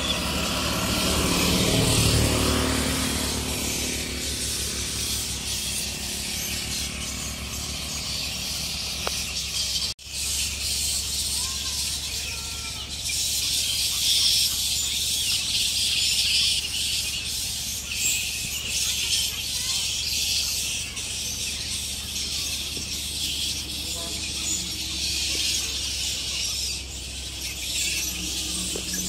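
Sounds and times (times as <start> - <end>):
low engine hum: 0.0 - 12.0, 20.5 - 29.0
flying foxes chattering and squealing: 0.0 - 29.0.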